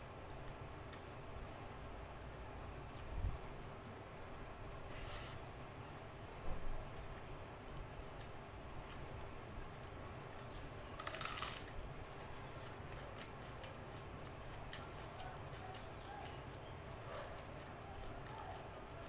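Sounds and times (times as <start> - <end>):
wet chewing clicks: 7.7 - 19.0.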